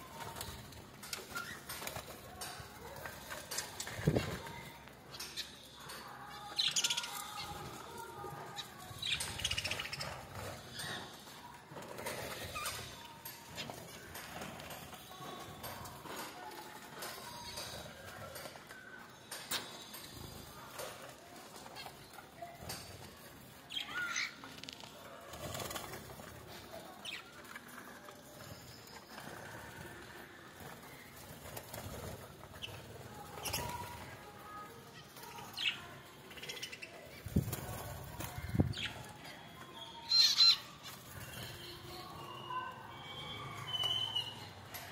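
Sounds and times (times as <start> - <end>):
birds chirping: 0.0 - 44.9.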